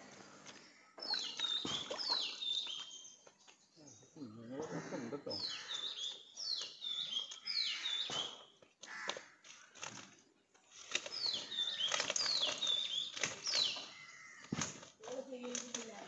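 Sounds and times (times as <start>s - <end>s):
songbird whistling: 1.0s - 3.2s, 5.4s - 8.4s, 11.1s - 14.3s.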